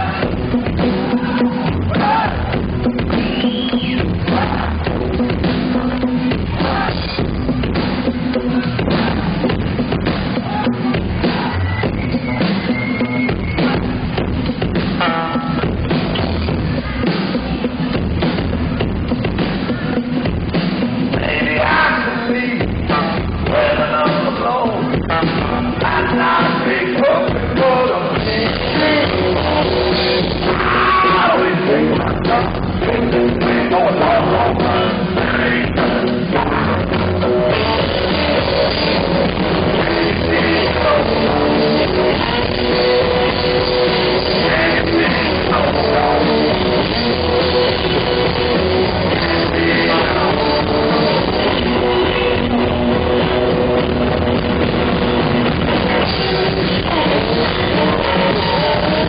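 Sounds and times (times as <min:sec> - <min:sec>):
drum kit: 0:00.0 - 0:59.0
person singing: 0:21.1 - 0:53.9, 0:55.7 - 0:59.0
electric guitar riff: 0:28.2 - 0:59.0.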